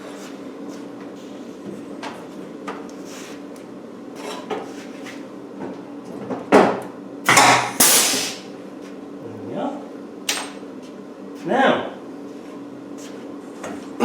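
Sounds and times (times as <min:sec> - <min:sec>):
metal tools and panels clattering: 0:07.3 - 0:08.1
loud burst of noise: 0:07.3 - 0:08.4
loud sharp crack: 0:07.3 - 0:08.4.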